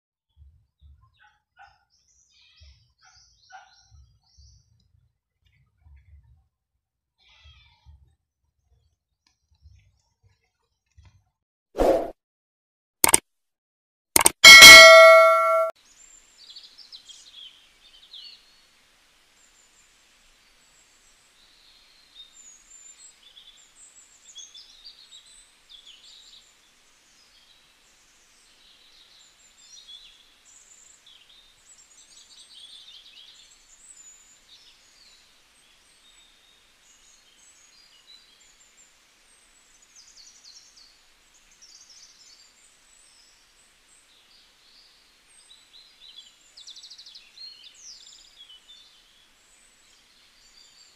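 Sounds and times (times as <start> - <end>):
small birds chirping: 0.8 - 4.7.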